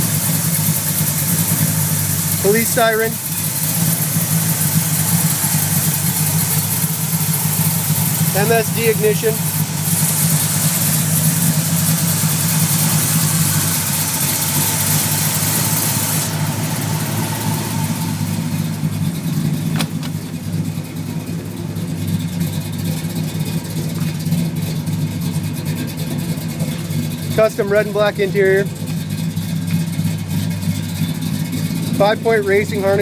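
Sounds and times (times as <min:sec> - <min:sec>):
car engine idling: 0:00.0 - 0:33.0
loud hiss: 0:03.6 - 0:16.4.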